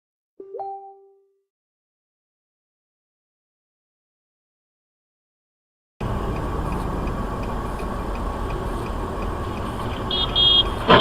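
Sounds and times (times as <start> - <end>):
faint regular ticking: 6.0 - 11.0
vehicle running: 6.0 - 11.0.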